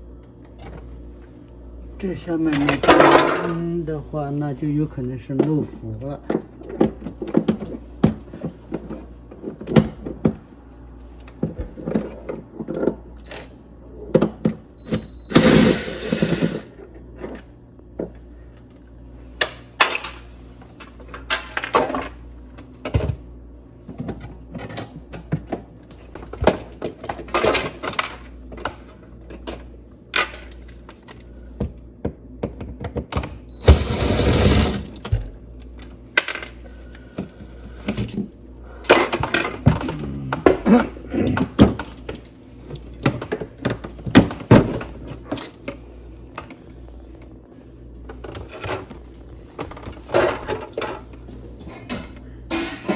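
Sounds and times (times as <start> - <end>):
steady low hum: 0.0 - 52.9
tools and plastic parts clattering: 2.4 - 3.7, 19.4 - 22.2, 24.0 - 31.2, 35.8 - 45.8, 48.0 - 52.9.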